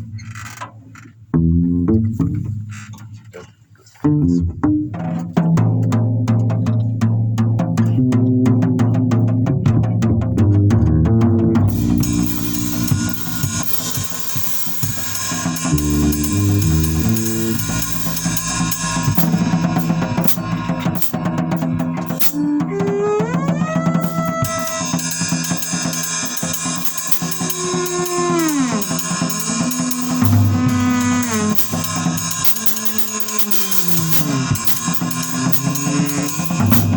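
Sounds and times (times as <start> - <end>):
bass guitar notes: 1.3 - 2.5, 4.0 - 4.9
drum kit playing: 11.7 - 22.5, 23.5 - 36.9.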